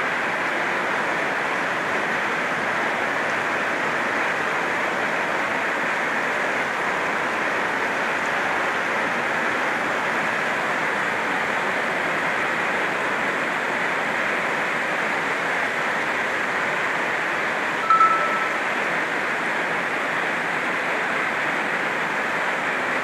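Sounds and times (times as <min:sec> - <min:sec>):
heavy rain on a tin roof: 0:00.0 - 0:17.8, 0:18.7 - 0:23.0
short high tone: 0:17.8 - 0:18.8.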